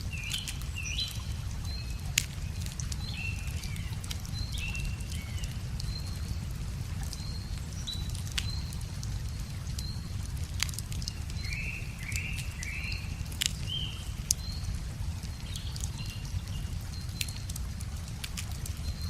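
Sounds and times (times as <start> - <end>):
river water rumble: 0.0 - 19.0
wood fire crackling: 0.0 - 19.0
small bird chirping: 10.7 - 14.7.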